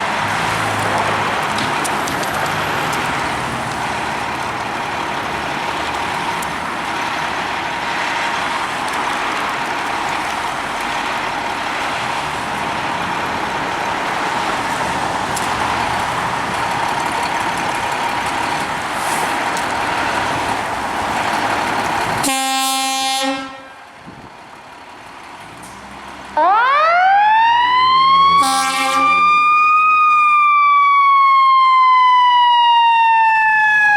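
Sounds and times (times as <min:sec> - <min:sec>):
vehicle and street noise: 0:00.0 - 0:33.9
air horn blast: 0:22.2 - 0:23.9, 0:28.3 - 0:29.4
siren wailing: 0:26.4 - 0:33.9.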